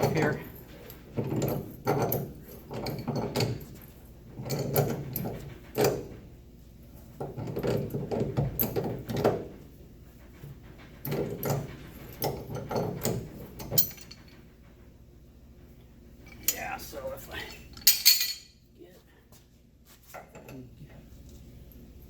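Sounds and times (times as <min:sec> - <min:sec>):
metal scraping creaking and clanking: 0:00.0 - 0:06.3.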